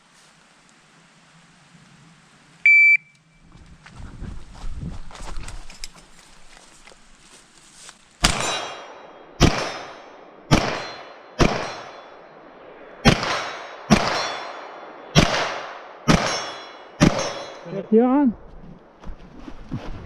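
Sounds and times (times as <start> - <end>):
gunshots: 8.2 - 12.1, 13.0 - 17.6
steel target ringing clang: 8.2 - 12.3, 13.0 - 15.4, 16.1 - 17.8.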